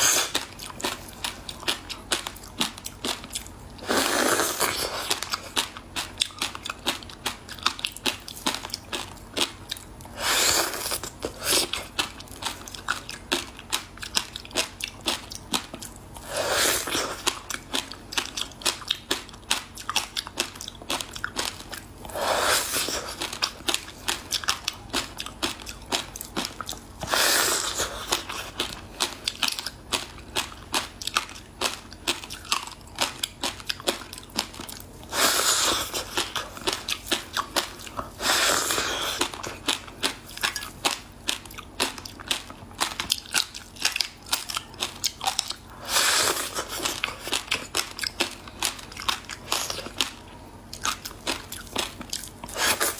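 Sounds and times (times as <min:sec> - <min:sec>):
crunching frozen ice: 0:03.8 - 0:05.6.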